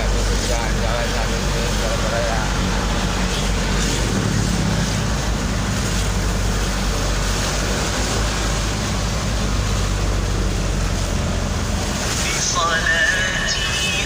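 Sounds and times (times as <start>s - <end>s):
vehicle engine and road noise: 0.0s - 14.0s.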